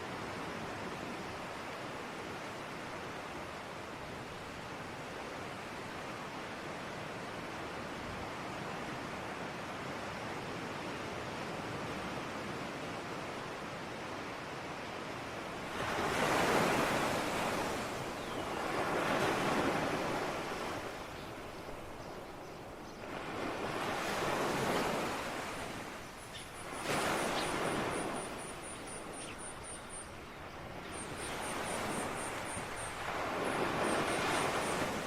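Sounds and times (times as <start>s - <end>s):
ocean waves breaking: 15.6s - 29.6s.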